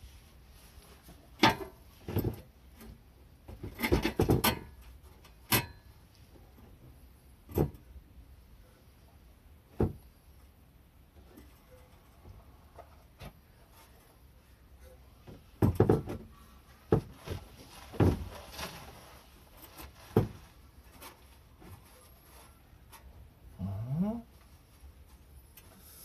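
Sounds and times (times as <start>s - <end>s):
sharp knocks and clunks: 15.2s - 16.3s.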